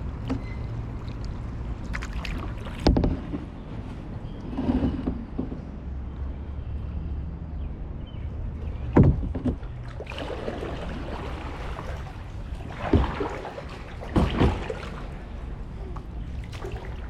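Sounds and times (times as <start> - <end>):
paddle strokes through water: 0.2 - 5.4, 8.7 - 17.0
sharp knock or splash: 12.7 - 15.0.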